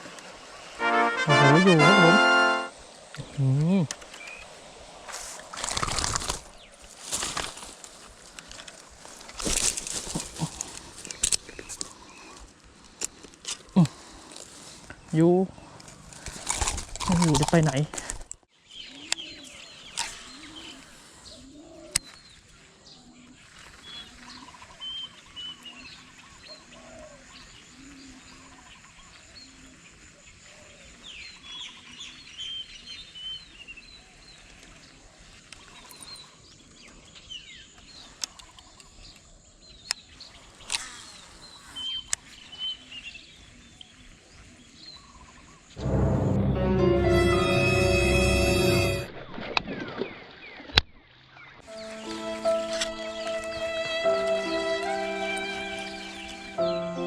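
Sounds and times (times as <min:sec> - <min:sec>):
birds chirping: 0:51.7 - 0:57.0.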